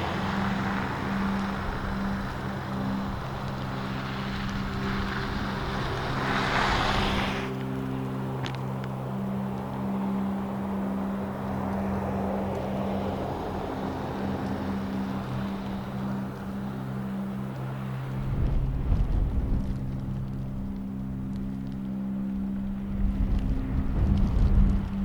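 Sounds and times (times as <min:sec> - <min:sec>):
storm wind rushing: 0:00.0 - 0:07.9, 0:18.1 - 0:21.3, 0:22.4 - 0:25.0
vehicle engine humming: 0:00.0 - 0:25.0.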